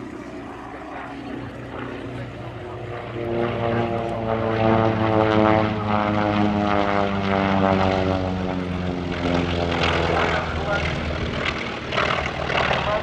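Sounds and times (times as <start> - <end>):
propeller plane engine drone: 0.0 - 13.0.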